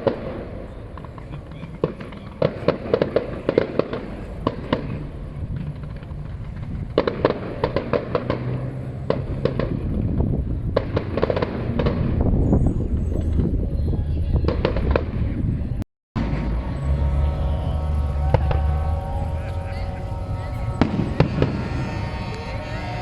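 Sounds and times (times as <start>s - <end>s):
fireworks bangs and crackles: 0.0s - 15.5s
low rumble: 15.1s - 23.0s.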